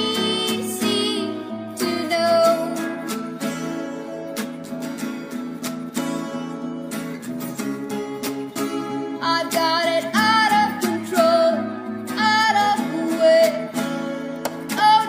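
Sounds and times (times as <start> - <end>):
person singing long wavering notes: 0.0 - 3.6, 9.2 - 13.7
acoustic guitar strummed: 0.0 - 15.0.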